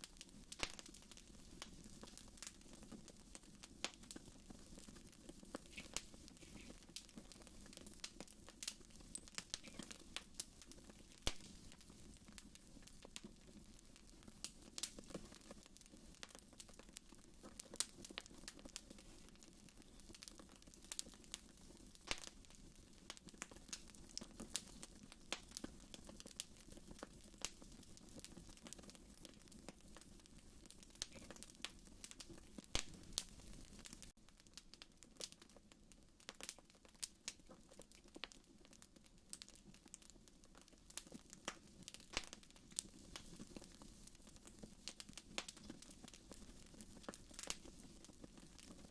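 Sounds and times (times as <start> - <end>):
fire popping and snapping: 0.0 - 48.9
wood fire crackling: 0.0 - 48.9
low hiss of flame: 0.1 - 23.9.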